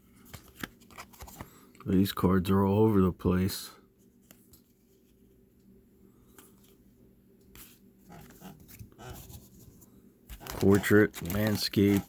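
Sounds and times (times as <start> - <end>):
low steady hum: 0.0 - 12.0
cards flicking and rubbing: 10.3 - 12.0.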